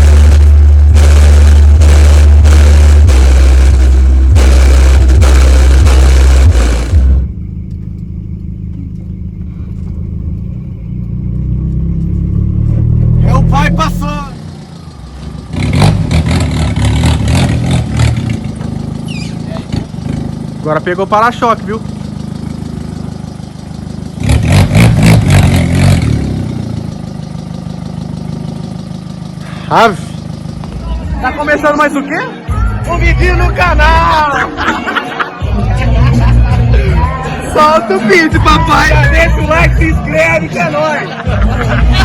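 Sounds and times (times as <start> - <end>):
car engine running: 0.0 - 42.0
loud deep bass from car stereo: 0.0 - 42.0.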